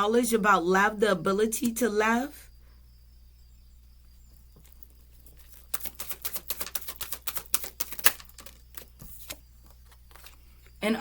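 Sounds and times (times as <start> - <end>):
cards being shuffled: 4.6 - 10.6.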